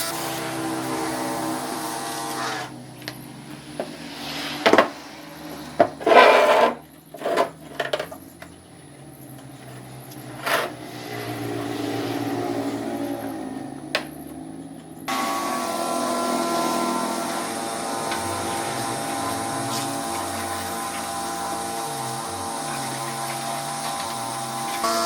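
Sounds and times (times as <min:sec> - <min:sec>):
rough scraping strokes: 0:03.8 - 0:07.7, 0:15.3 - 0:24.9.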